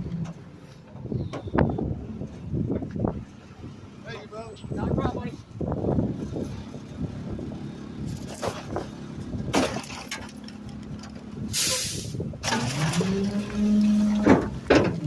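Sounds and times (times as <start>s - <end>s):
compressed air hissing: 11.5s - 12.2s.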